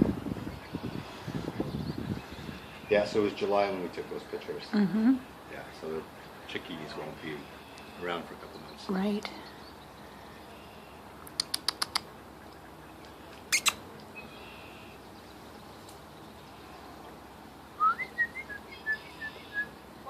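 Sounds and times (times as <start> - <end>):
small bird chirping: 7.6 - 17.0
sharp clicks: 11.2 - 12.1.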